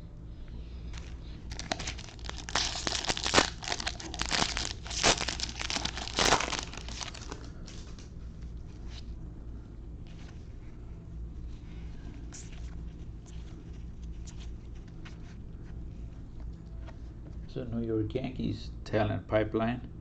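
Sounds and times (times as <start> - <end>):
foil wrapper tearing and crinkling: 1.0 - 8.0.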